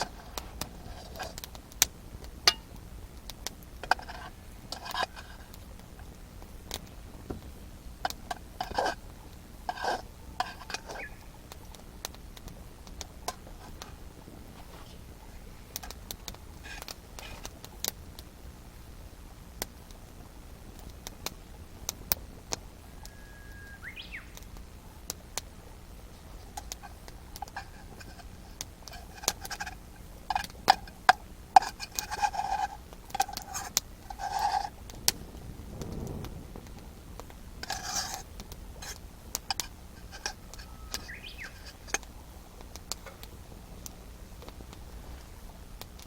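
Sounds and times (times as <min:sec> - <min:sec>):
campfire wood crackling: 0:00.0 - 0:46.0
short pitched calls: 0:10.8 - 0:11.4, 0:22.9 - 0:24.5, 0:40.0 - 0:42.0
upward gliding chirp: 0:23.1 - 0:24.4, 0:40.6 - 0:41.6.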